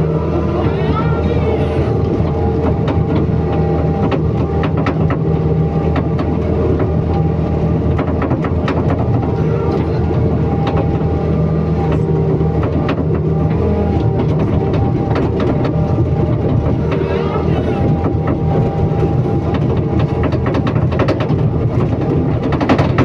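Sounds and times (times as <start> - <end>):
excavator diesel engine running: 0.0 - 23.0
machine clicks and knocks: 17.8 - 23.0.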